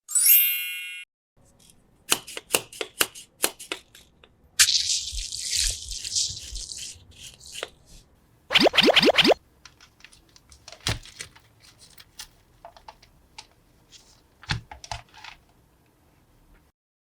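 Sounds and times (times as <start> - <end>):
chime: 0.1 - 1.1
plastic packaging rustling and tearing: 4.7 - 7.0, 9.6 - 15.5.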